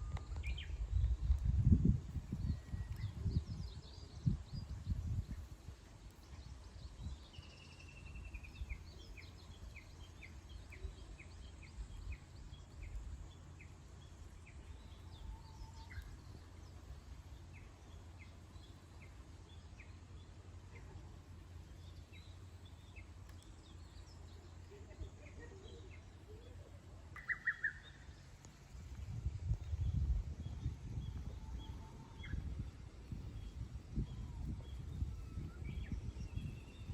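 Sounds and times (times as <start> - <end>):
steady low rumble: 0.0 - 36.9
birds chirping: 2.2 - 36.9.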